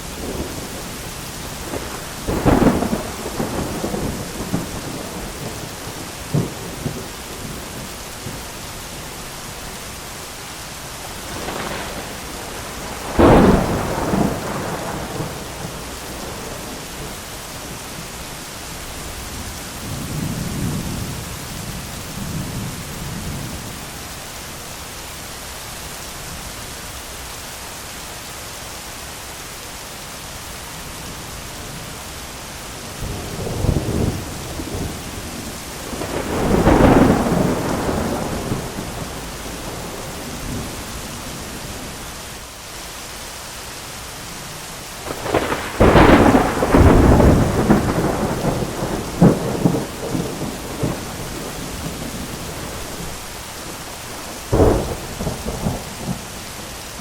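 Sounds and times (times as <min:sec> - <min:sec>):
low rolling thunder rumble: 0:00.0 - 0:09.8, 0:11.0 - 0:23.9, 0:31.2 - 0:42.1, 0:44.3 - 0:57.0
heavy rain: 0:00.0 - 0:57.0
thunder cracks: 0:01.6 - 0:08.4, 0:11.2 - 0:17.1, 0:33.0 - 0:40.8, 0:45.0 - 0:53.3, 0:54.2 - 0:56.3.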